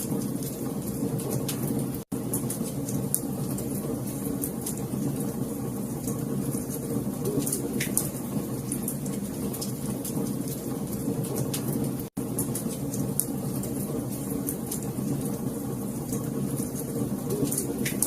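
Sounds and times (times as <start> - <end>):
fire crackles and pops: 0.0 - 18.0
wood fire rumbling: 0.0 - 18.0.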